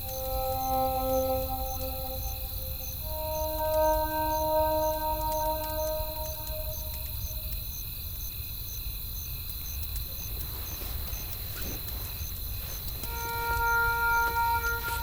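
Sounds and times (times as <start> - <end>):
sustained music note: 0.0 - 7.5, 13.1 - 15.0
faint fire crackles: 0.0 - 15.0
high insect-like chirp: 0.0 - 15.0.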